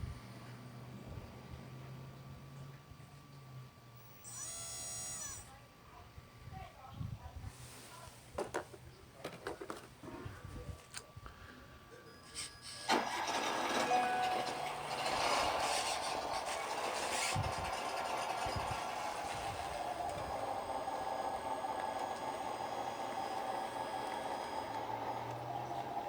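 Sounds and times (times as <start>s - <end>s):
model machine electric drive whirring: 3.9s - 5.6s, 14.5s - 26.0s.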